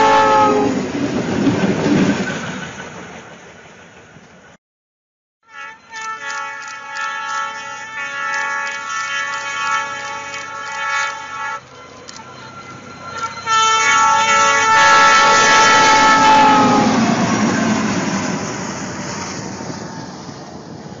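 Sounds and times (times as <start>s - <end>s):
locomotive horn: 0.0s - 0.9s, 5.4s - 17.5s.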